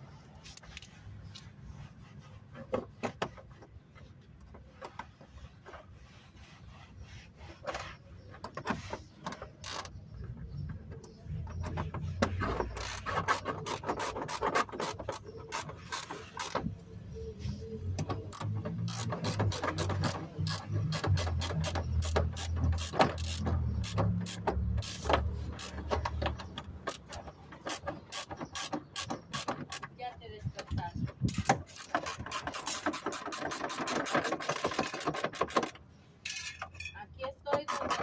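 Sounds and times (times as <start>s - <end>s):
ratchet wrench clicking: 18.3s - 26.2s.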